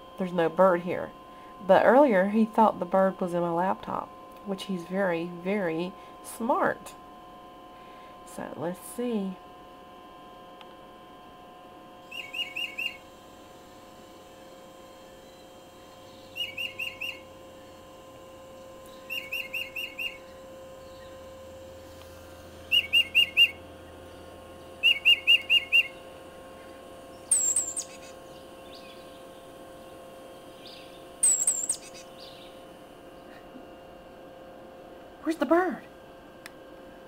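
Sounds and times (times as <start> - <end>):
recorded birdsong from a speaker: 12.1 - 13.0, 15.1 - 17.8, 18.9 - 21.3, 22.7 - 32.6.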